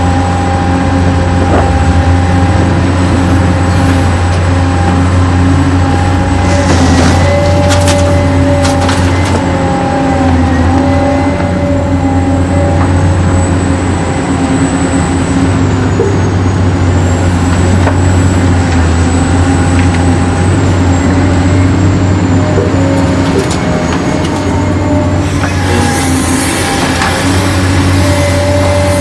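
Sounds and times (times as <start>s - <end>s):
toy excavator motor whining: 25.2s - 29.0s.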